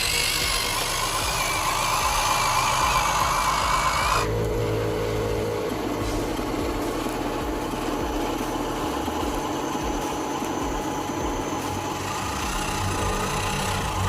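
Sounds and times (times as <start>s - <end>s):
faint rising whine: 0.0s - 14.0s
model truck motor drone: 0.0s - 14.0s.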